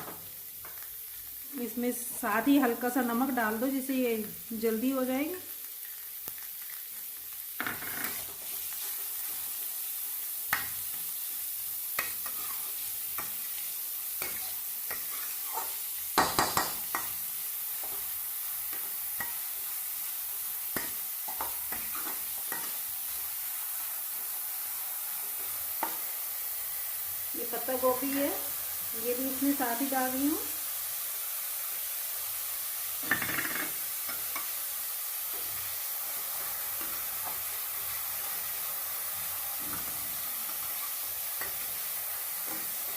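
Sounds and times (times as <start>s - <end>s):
vegetables sizzling in hot fat: 0.0s - 42.9s
spatula scraping pan: 7.7s - 9.4s, 12.0s - 17.2s.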